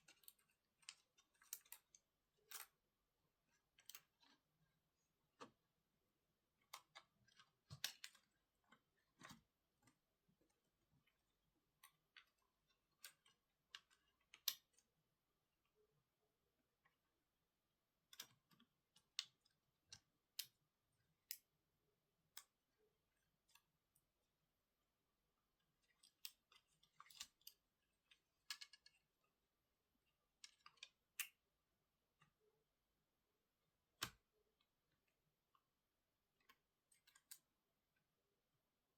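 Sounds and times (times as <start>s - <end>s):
small tools clicking and tapping: 0.0s - 2.8s, 25.8s - 29.1s.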